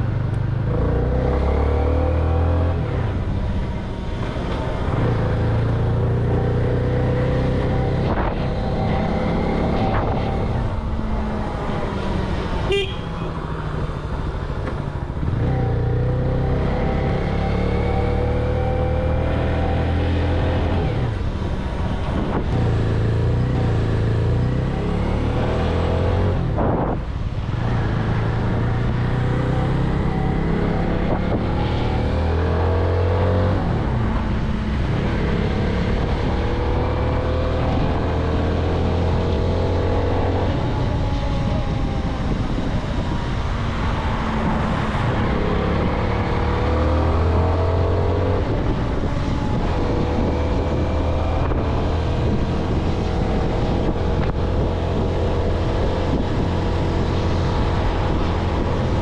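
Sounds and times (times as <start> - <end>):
wind on microphone: 7.1 - 12.5, 18.6 - 59.0.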